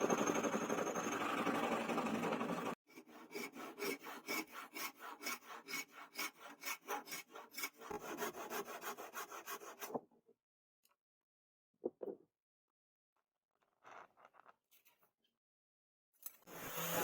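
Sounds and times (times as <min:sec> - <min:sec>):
hand file scraping metal: 0:00.5 - 0:09.9.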